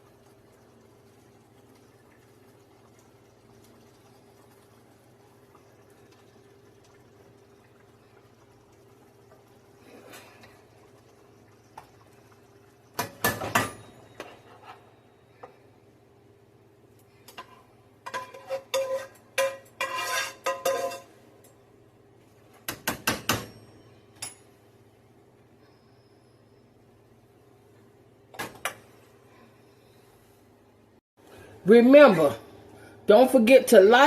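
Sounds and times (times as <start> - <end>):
faint steady hum: 0.0 - 34.0
metal utensils clinking on dishes: 18.1 - 21.1.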